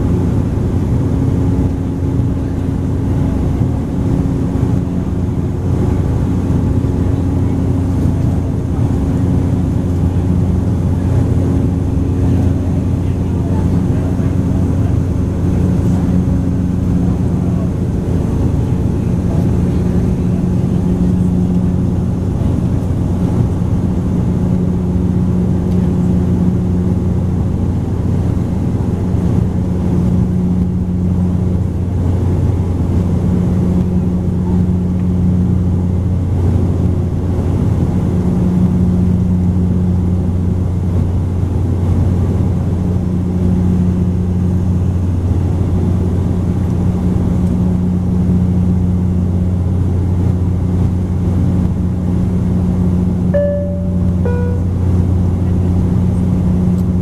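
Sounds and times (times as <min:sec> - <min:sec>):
higher engine tone: 0:00.0 - 0:36.2, 0:52.4 - 0:57.0
propeller plane cabin drone: 0:00.0 - 0:57.0.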